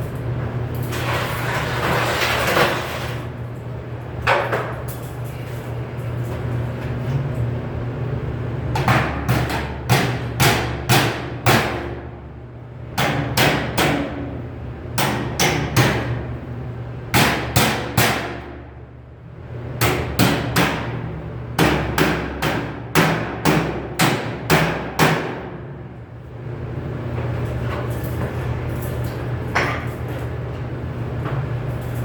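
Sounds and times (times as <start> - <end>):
steady low hum: 3.2 - 32.0
hammer striking sheet metal: 8.8 - 12.0, 13.0 - 14.3, 17.1 - 18.6, 19.8 - 21.0, 21.6 - 25.6.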